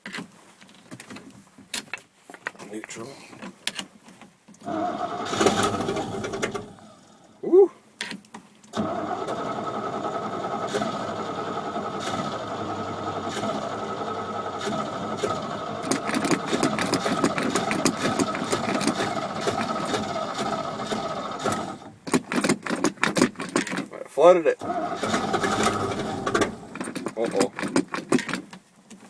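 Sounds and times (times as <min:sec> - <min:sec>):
starter motor cranking: 0:04.6 - 0:07.4, 0:08.7 - 0:28.6.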